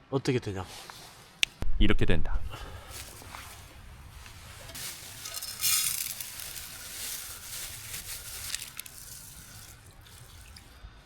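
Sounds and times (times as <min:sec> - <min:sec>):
campfire crackling and hissing: 0:02.6 - 0:10.8.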